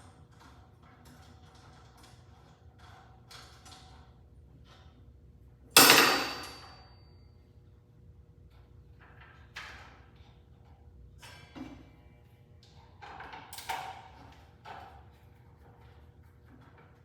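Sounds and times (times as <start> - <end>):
sharp metallic clank: 5.8 - 6.9.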